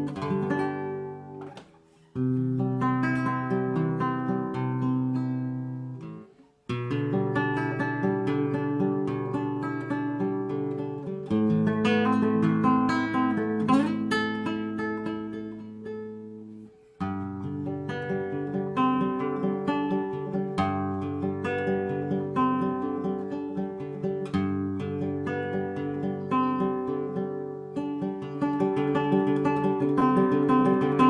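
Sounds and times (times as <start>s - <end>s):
acoustic guitar picking: 0.0s - 31.0s.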